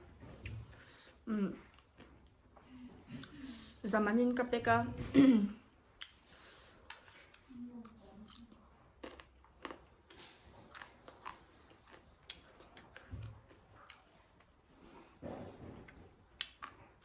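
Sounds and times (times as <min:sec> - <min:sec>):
wet chewing clicks and smacks: 0:08.3 - 0:14.5, 0:15.9 - 0:17.0.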